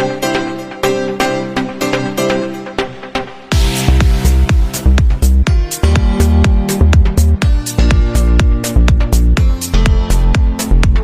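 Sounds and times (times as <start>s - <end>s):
electronic dance music: 0.0s - 11.0s
heavy kick drum: 3.5s - 11.0s.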